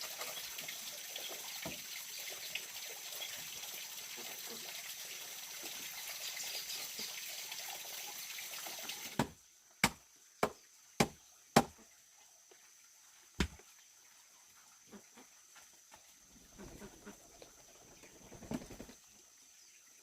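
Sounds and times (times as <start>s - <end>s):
running water: 0.0s - 20.0s
sharp knocks: 13.4s - 13.6s.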